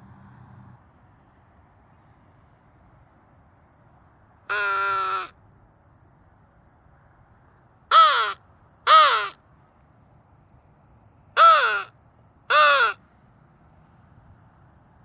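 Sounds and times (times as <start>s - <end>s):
crow call caws: 4.5s - 5.3s, 7.9s - 9.4s, 11.4s - 11.9s, 12.5s - 13.0s.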